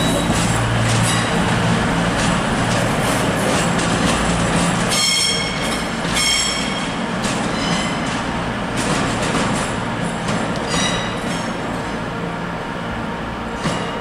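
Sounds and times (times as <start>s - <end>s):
wheels rumbling on rail: 0.0s - 14.0s
high-pitched metallic squeal: 4.9s - 8.1s, 10.7s - 11.5s.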